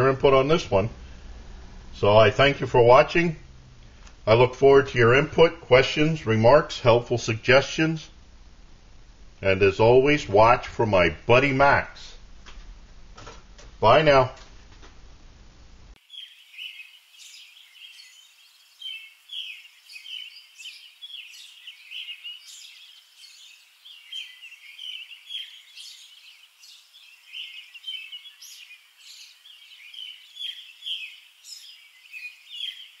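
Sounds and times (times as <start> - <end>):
small songbirds chirping: 15.9 - 33.0.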